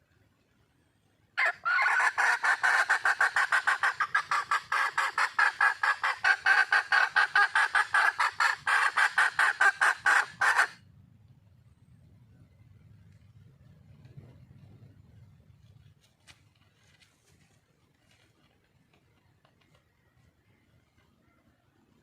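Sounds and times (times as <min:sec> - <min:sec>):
hen clucking rapidly: 0:01.4 - 0:10.8.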